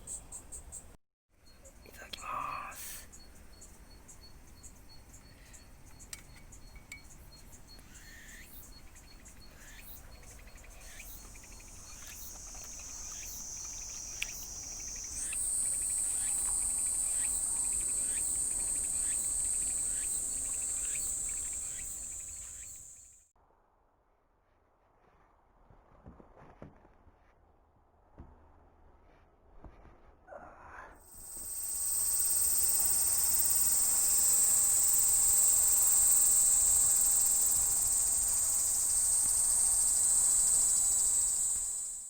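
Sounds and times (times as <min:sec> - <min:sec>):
faint regular chirping: 0:00.0 - 0:23.2, 0:31.0 - 0:42.0
short insect calls: 0:00.0 - 0:23.3, 0:31.0 - 0:42.0
insects buzzing shrilly: 0:01.9 - 0:23.2, 0:31.0 - 0:42.0.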